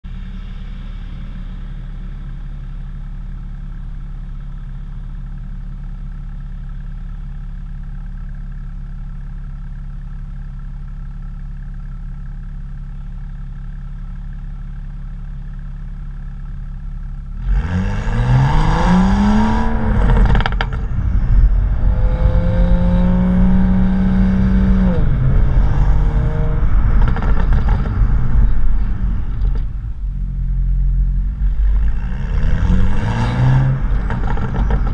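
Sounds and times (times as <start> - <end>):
car engine idling and revving: 0.0 - 34.9
exhaust tips rattling: 18.9 - 23.7, 25.0 - 32.0, 33.4 - 34.9.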